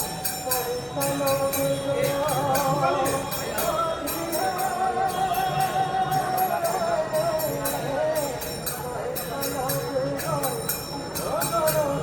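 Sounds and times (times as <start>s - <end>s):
bells and hand cymbals struck: 0.0s - 12.0s.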